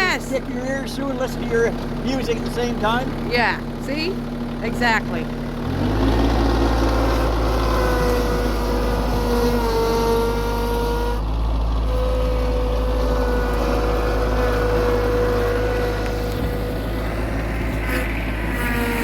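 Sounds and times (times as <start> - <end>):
tractor engine running: 0.0 - 19.0
high whine: 6.0 - 19.0.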